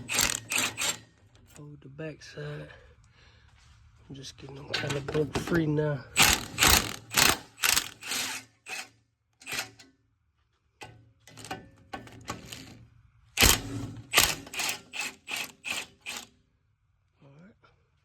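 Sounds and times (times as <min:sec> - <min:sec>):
hand ratchet clicking: 0:00.0 - 0:01.0, 0:06.2 - 0:09.8, 0:13.4 - 0:16.3.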